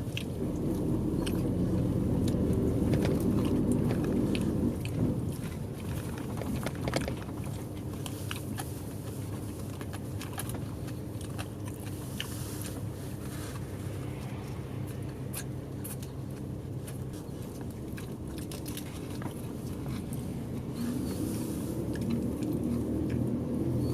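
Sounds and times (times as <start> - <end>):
interior clicks and rattles: 0.0 - 12.9
bus engine humming: 0.0 - 23.9.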